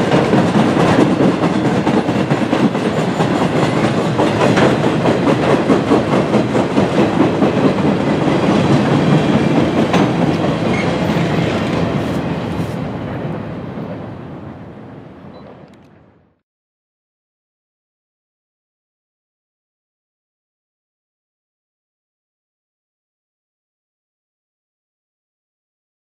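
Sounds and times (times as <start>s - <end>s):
train wheels clacking over rail joints: 0.0s - 14.0s.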